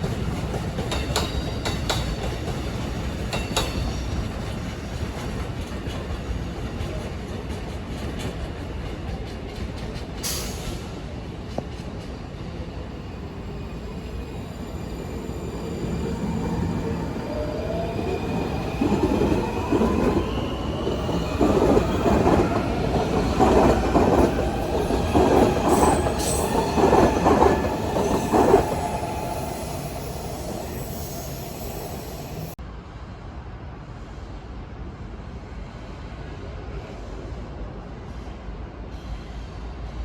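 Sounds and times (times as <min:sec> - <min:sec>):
train wheels clacking on rails: 0:00.0 - 0:12.2, 0:16.1 - 0:30.7
wheels squealing on rails: 0:13.2 - 0:32.6.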